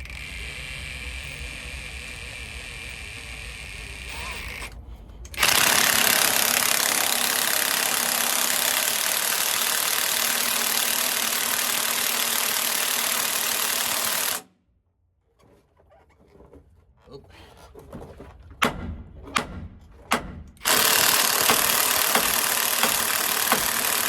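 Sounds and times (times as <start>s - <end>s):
power tool running: 0.0s - 4.7s, 5.3s - 14.5s, 20.6s - 24.0s.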